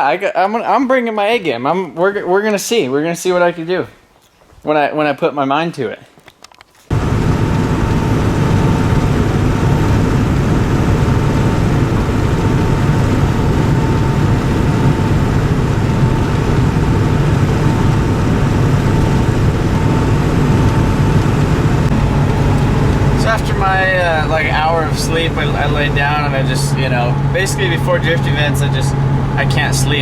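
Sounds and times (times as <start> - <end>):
car interior highway drone: 6.9 - 30.0
faint steady whine: 6.9 - 30.0.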